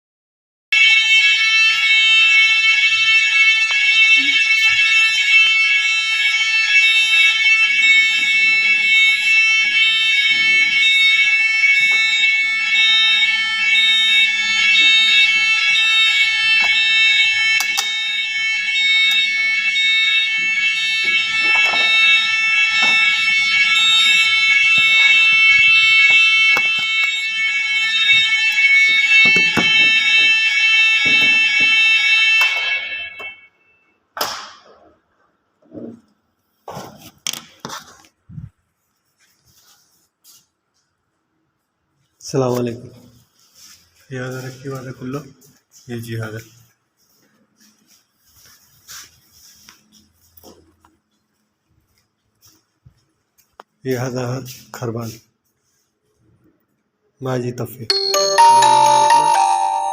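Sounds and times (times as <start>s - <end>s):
fire alarm electronic tone: 0.7s - 35.0s, 57.9s - 59.9s.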